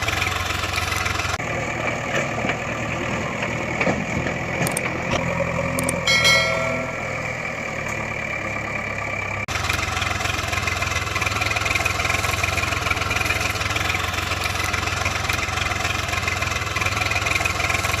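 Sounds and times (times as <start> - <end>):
vehicle engine running: 0.0 - 18.0
short pitched tone: 6.0 - 7.8.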